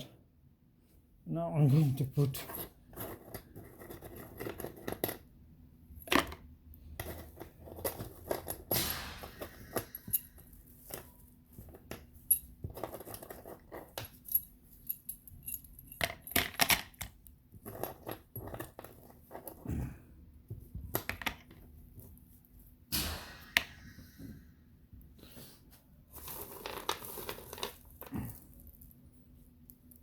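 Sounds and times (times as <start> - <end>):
small metal parts clinking: 6.0 - 19.6, 26.1 - 29.0.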